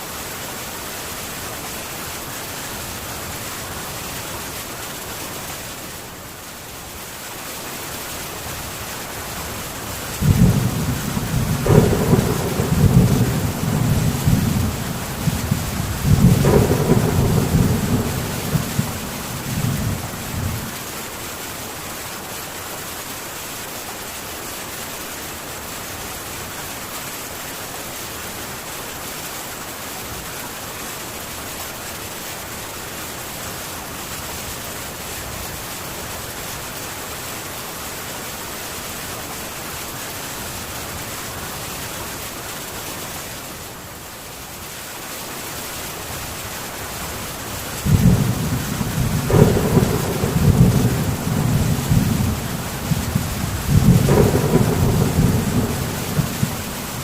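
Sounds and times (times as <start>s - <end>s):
heavy rain on a tin roof: 0.0s - 57.0s
thunder rumble: 10.2s - 20.8s, 47.8s - 57.0s.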